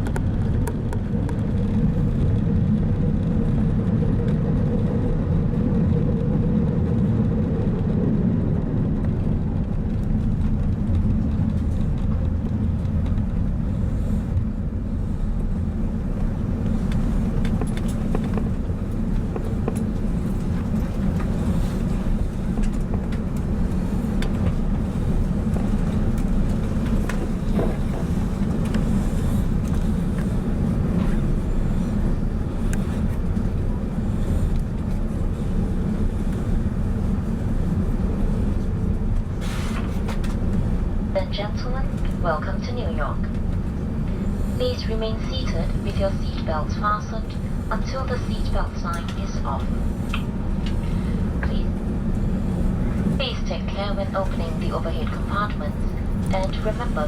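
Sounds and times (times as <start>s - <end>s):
airplane cabin rumble: 0.0s - 57.0s
faint hum: 40.2s - 57.0s.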